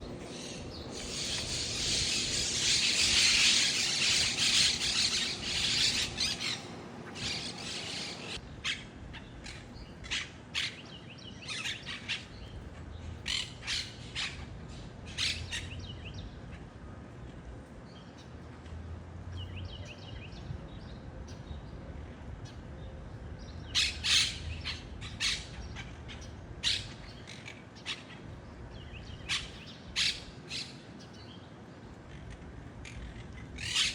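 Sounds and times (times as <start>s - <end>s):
parakeets squawking: 0.3s - 8.8s, 23.8s - 28.2s, 32.1s - 33.9s.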